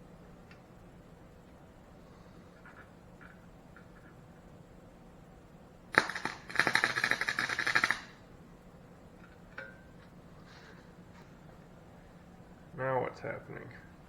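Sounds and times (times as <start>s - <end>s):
welding arc crackling: 5.9s - 8.2s.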